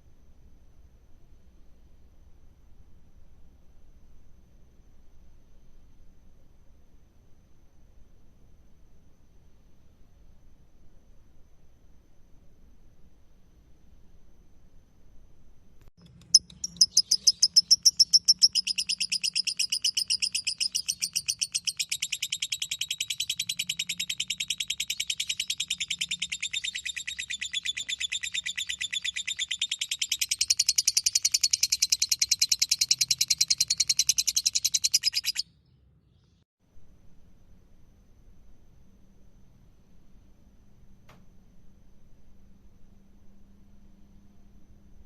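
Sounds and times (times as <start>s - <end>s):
lovebird chattering trill: 16.0s - 35.4s.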